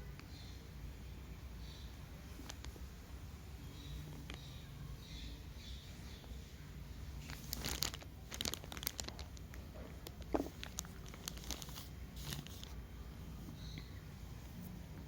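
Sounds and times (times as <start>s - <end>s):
catnip sticks crinkling: 2.3s - 3.0s, 7.1s - 12.8s.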